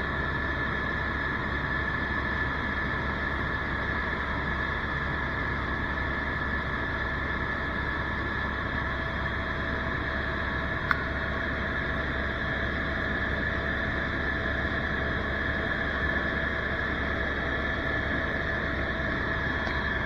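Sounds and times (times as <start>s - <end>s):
helicopter engine and rotor drone: 0.0s - 20.0s
high even whine: 10.4s - 20.0s.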